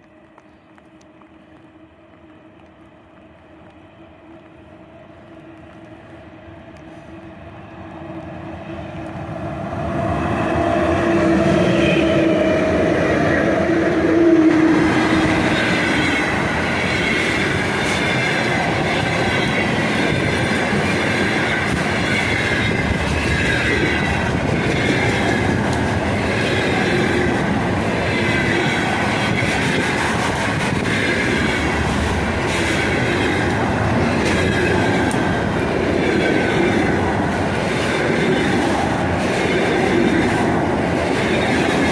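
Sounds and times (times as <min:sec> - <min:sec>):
electric locomotive humming: 0:00.0 - 0:41.9
wheels clickety-clack over rail joints: 0:00.0 - 0:41.9
freight wagons rumbling: 0:10.6 - 0:41.9.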